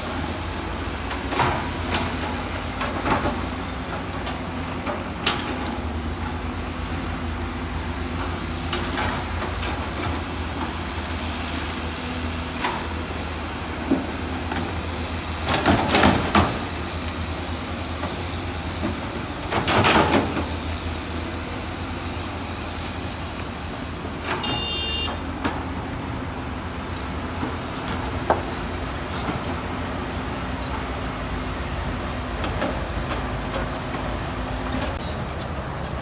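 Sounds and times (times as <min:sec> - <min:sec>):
diesel machinery engine running: 0:00.0 - 0:36.0
brief high-pitched tone: 0:24.4 - 0:25.2.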